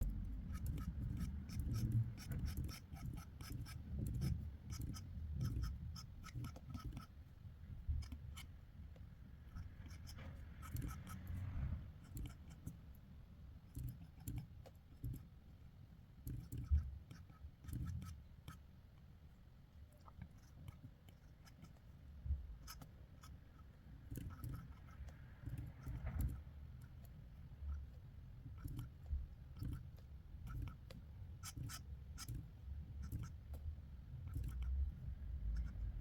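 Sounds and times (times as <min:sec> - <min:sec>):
pencil scratching on paper: 0:00.0 - 0:07.2, 0:09.5 - 0:12.8, 0:16.2 - 0:18.6, 0:20.0 - 0:21.9, 0:22.6 - 0:33.6, 0:34.2 - 0:34.8.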